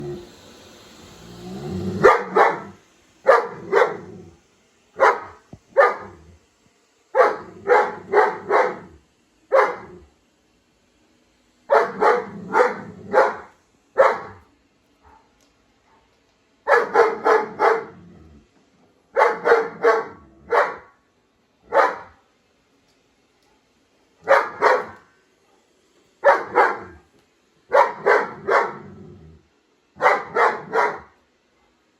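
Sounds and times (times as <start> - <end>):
dog barking: 2.0 - 4.1, 5.0 - 6.2, 7.2 - 10.0, 11.7 - 14.4, 15.0 - 15.3, 16.7 - 18.0, 19.1 - 21.0, 21.7 - 22.2, 24.2 - 25.1, 26.2 - 27.0, 27.7 - 29.0, 30.0 - 31.2.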